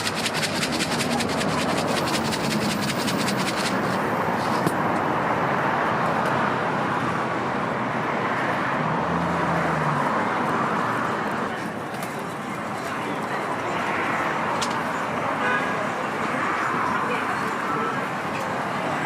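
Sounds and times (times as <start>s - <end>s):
fast even ticking: 0.0s - 4.0s
city hubbub: 0.0s - 19.0s
traffic rumble: 0.0s - 19.0s.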